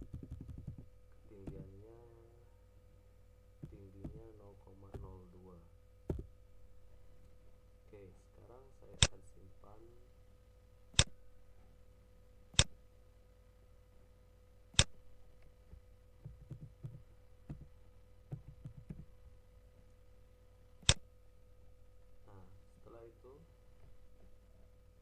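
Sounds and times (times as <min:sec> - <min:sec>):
computer mouse clicks: 0:00.0 - 0:00.9, 0:20.8 - 0:21.0
faint electrical hum: 0:00.0 - 0:25.0
light clicks and taps: 0:04.9 - 0:05.3.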